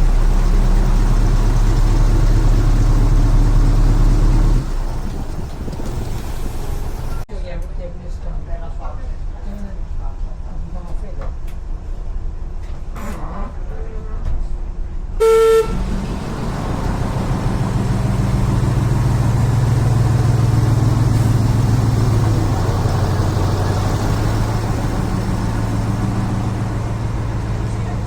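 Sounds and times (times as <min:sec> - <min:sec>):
diesel engine running: 0:00.0 - 0:07.2, 0:15.2 - 0:28.0
train horn blast: 0:15.2 - 0:15.9.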